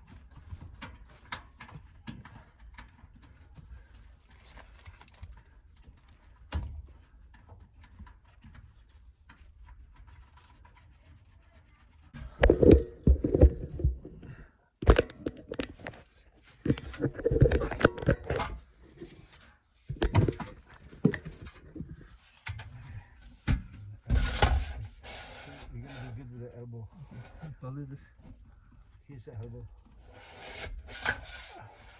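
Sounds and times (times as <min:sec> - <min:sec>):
vent pipe knocking and rattling: 0:00.0 - 0:04.5, 0:05.3 - 0:26.0.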